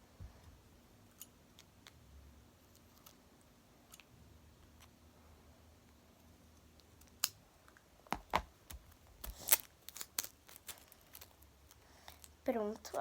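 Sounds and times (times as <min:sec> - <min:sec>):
scissors snipping paper: 0:08.7 - 0:11.4.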